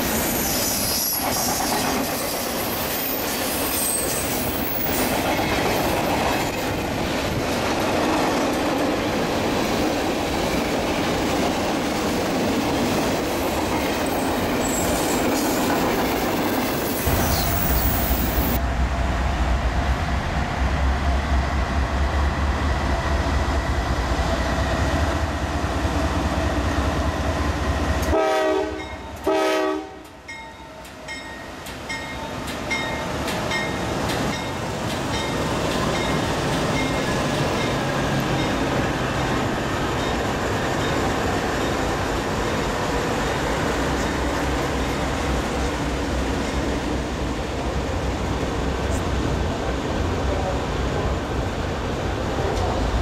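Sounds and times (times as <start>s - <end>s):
locomotive horn blasts: 28.0s - 30.2s.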